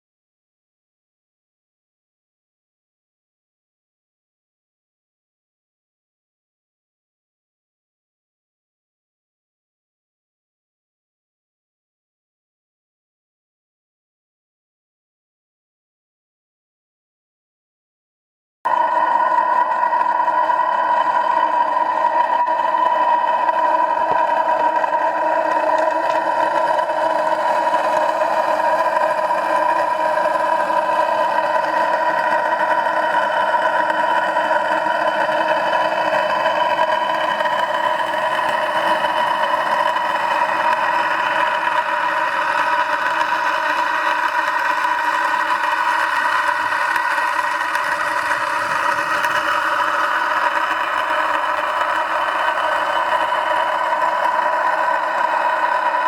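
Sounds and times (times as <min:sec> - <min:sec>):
vacuum pump engine humming: 0:18.7 - 0:56.0.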